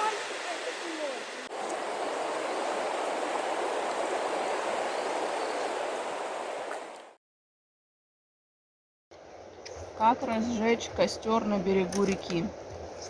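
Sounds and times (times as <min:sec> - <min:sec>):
river water rushing: 0:00.0 - 0:07.2.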